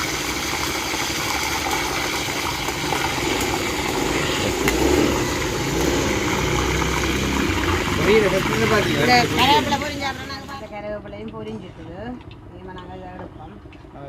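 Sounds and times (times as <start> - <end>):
leaves sizzling in hot oil: 0.0 - 10.7
sharp oil crackles: 0.0 - 10.7.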